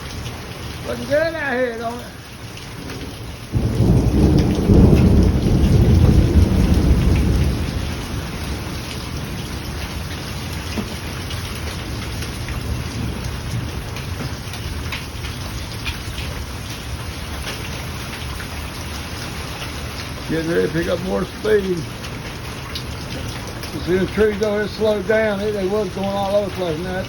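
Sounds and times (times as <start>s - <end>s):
heavy rain pouring: 0.0s - 27.0s
thunder rumble: 2.7s - 18.4s.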